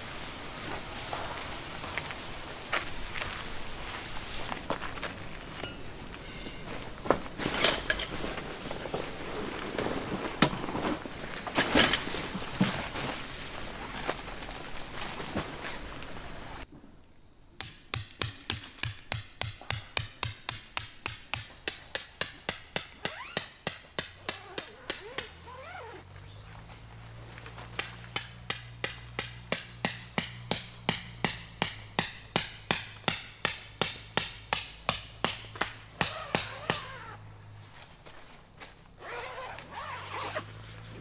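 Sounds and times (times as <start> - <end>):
rapid metallic hammering: 17.6 - 25.5, 27.8 - 37.2.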